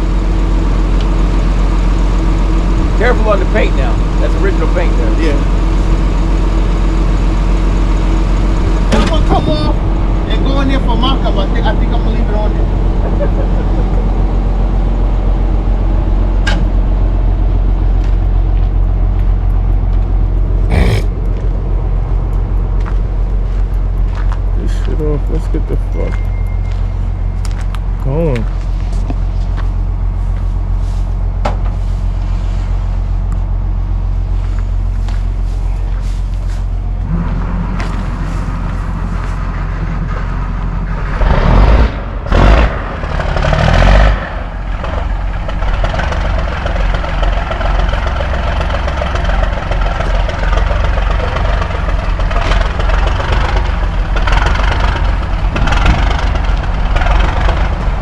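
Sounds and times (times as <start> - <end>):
diesel truck engine droning: 0.0 - 58.0
men talking: 2.9 - 5.6, 8.8 - 14.1, 24.5 - 26.2, 28.0 - 28.6.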